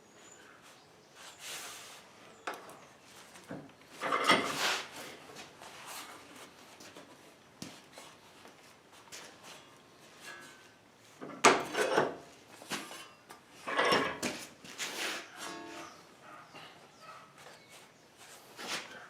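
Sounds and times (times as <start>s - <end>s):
tools and sheet metal scraping: 3.9s - 5.2s, 9.5s - 16.3s.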